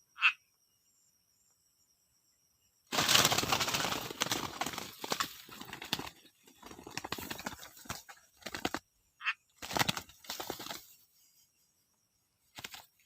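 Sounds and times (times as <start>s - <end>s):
rustling and flapping: 2.9s - 8.9s, 9.6s - 11.2s, 12.5s - 13.0s.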